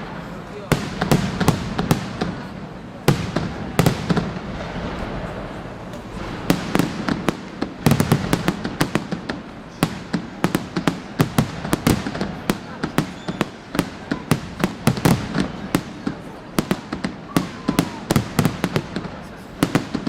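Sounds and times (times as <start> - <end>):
fireworks bursting with bangs: 0.0 - 20.0.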